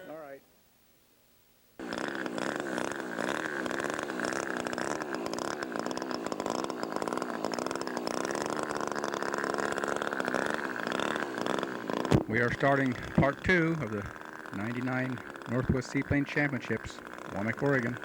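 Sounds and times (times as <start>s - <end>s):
model aircraft engine high revs: 1.8s - 18.0s.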